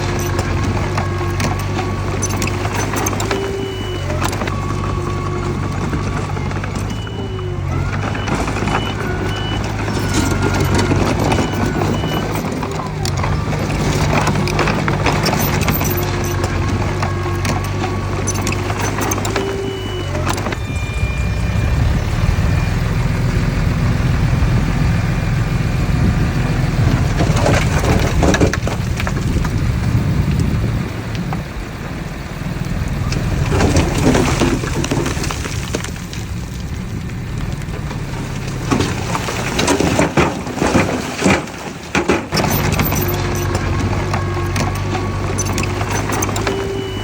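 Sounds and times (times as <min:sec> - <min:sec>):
steel tracks clanking: 0:00.0 - 0:24.2, 0:38.0 - 0:47.0
bulldozer diesel engine running: 0:00.0 - 0:47.0.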